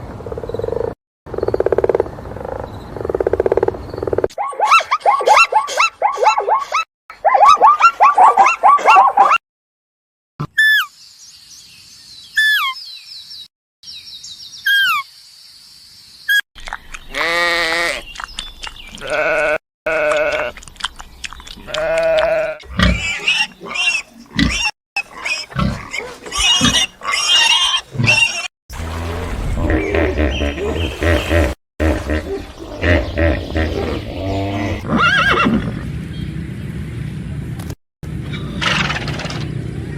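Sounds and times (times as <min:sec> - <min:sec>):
sheep or goats bleating: 0:17.1 - 0:18.0, 0:19.0 - 0:20.5, 0:21.7 - 0:22.6.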